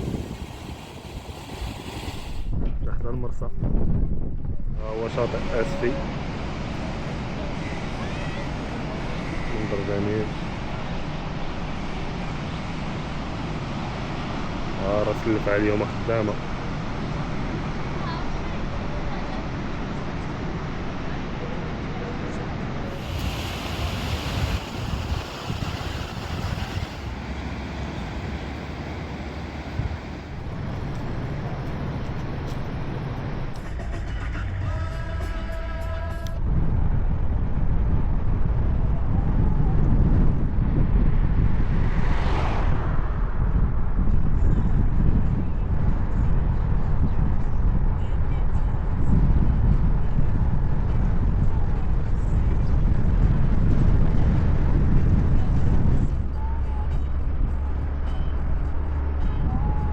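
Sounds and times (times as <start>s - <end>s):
surf washing: 0.0s - 2.6s, 5.0s - 31.8s
wind buffeting microphone: 0.0s - 34.0s, 36.2s - 57.8s.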